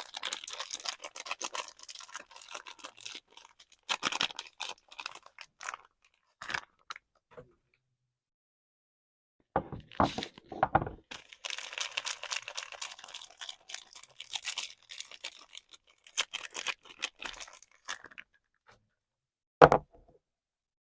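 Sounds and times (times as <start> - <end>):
wrapper crinkling and tearing: 0.0 - 7.0, 11.1 - 18.3.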